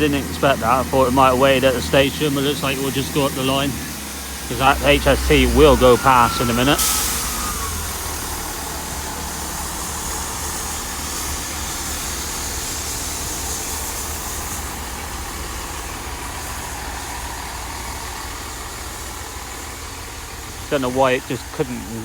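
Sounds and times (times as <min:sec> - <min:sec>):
diesel train engine rumble: 0:00.0 - 0:22.0.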